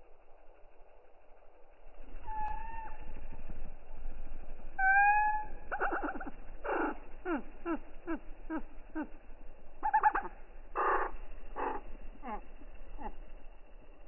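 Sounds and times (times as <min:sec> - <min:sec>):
rapid falling animal calls: 0:02.1 - 0:03.5, 0:04.7 - 0:14.0
animal cries: 0:02.2 - 0:03.1, 0:04.8 - 0:09.1, 0:09.8 - 0:13.3.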